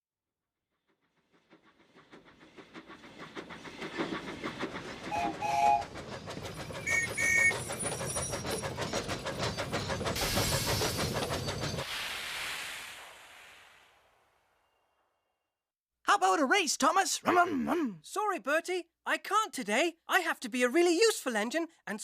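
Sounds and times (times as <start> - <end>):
steam locomotive chuffing: 0.8 - 13.4
steam hissing: 1.4 - 14.3
train whistle toots: 5.1 - 5.9.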